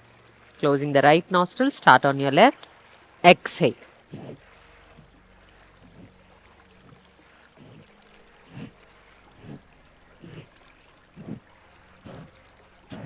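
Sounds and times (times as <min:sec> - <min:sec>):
small stream trickling: 0:00.0 - 0:13.0.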